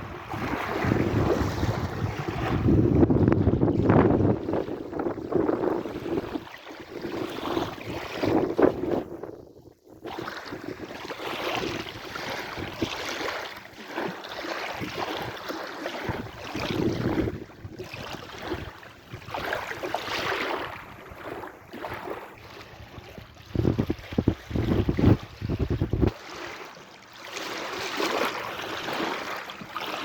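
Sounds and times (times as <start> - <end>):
sea waves washing in: 0.0 - 9.2
wind buffeting microphone: 0.0 - 13.0, 16.0 - 21.4, 22.0 - 26.2.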